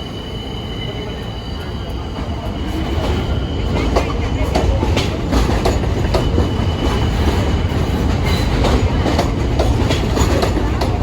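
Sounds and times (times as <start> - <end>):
subway train rumbling: 0.0 - 11.0
wheels clacking over rail joints: 2.9 - 11.0.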